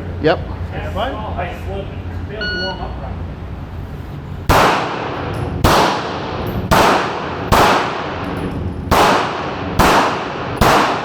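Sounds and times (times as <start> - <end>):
pistol shots: 4.5 - 11.0.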